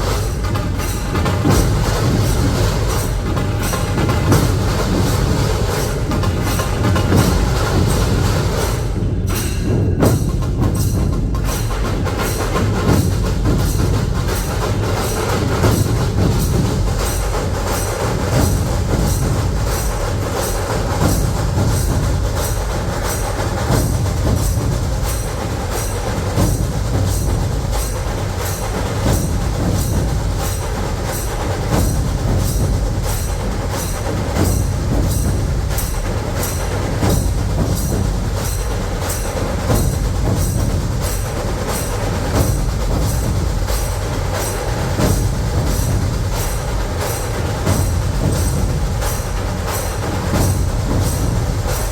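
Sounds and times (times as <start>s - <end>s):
dhol drums pounding: 0.0s - 51.9s
drum ensemble playing: 0.0s - 51.9s
rapid snare-like drumming: 0.0s - 51.9s.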